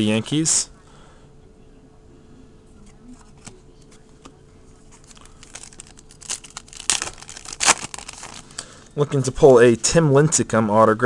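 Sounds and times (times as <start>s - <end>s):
wrapper tearing and crinkling: 5.0s - 8.6s.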